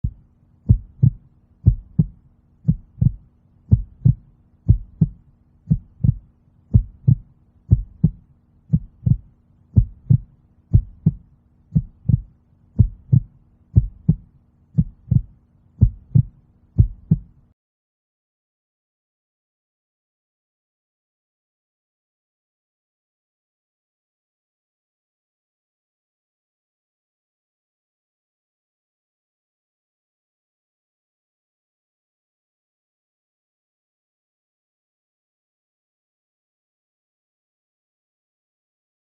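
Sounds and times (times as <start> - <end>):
heartbeat thumps: 0.0 - 17.4
faint steady hum: 0.0 - 17.6.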